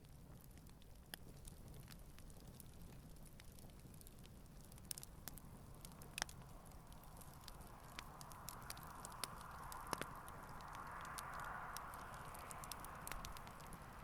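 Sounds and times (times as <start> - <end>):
campfire crackling and popping: 0.0 - 14.0
soft hiss: 4.2 - 14.0.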